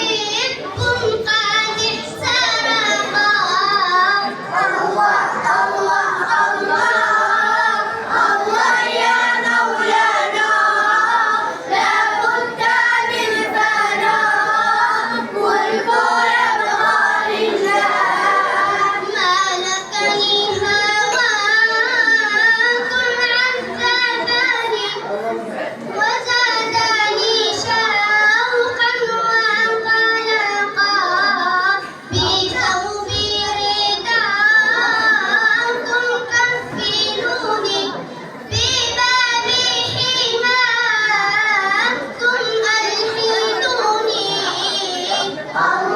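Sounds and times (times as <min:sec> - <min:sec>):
children singing: 0:00.0 - 0:25.2, 0:25.9 - 0:45.9.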